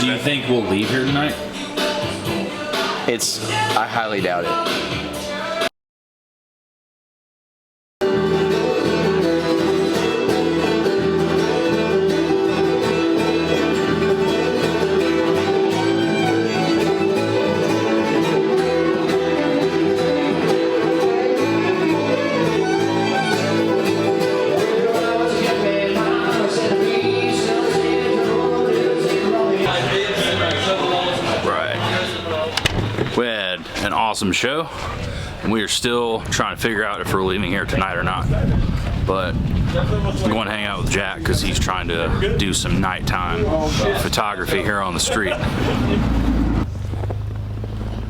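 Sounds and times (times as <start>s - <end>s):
bluegrass band playing: 0.0s - 5.6s, 8.0s - 35.5s, 40.2s - 46.7s
fiddle: 8.0s - 31.8s
flatpicked guitar: 8.0s - 33.2s
bass line: 8.0s - 33.4s, 37.0s - 48.0s.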